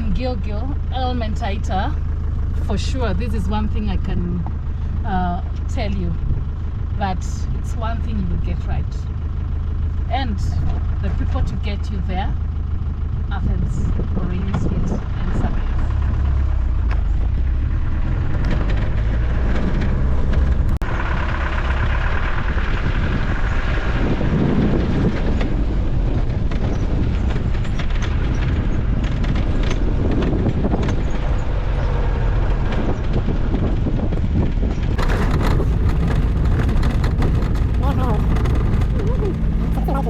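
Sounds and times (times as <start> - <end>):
vehicle engine and road rumble: 0.0 - 40.0
knocks and rattles: 15.6 - 22.2, 24.7 - 40.0.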